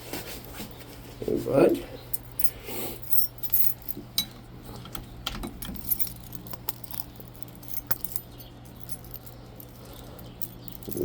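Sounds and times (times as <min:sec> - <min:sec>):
keys jangling: 0:02.2 - 0:04.0, 0:05.4 - 0:11.0.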